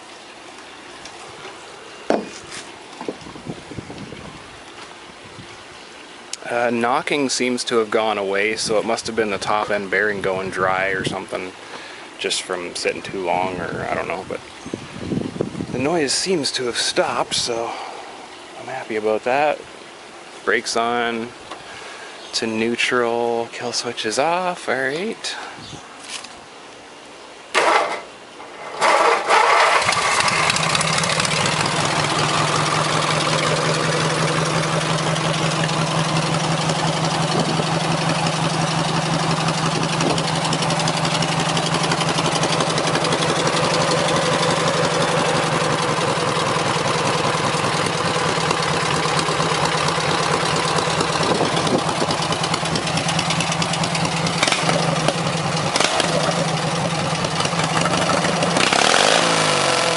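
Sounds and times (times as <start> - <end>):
lawn tractor engine idling: 27.6 - 59.9
starter cranking engine: 27.6 - 59.9.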